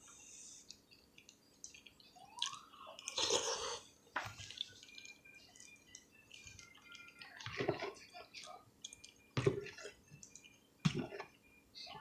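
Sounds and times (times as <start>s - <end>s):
wet chewing and lip smacking: 0.6s - 3.4s, 4.3s - 7.6s, 8.4s - 10.6s.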